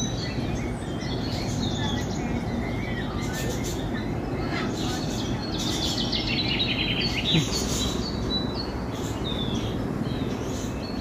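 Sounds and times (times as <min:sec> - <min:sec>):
birds chirping: 0:00.0 - 0:11.0
steady background noise: 0:00.0 - 0:11.0.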